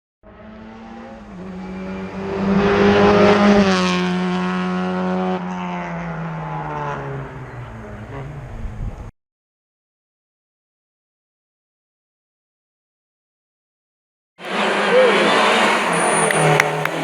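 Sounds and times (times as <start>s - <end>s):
rally car passing at speed: 0.3s - 9.0s, 14.4s - 17.0s.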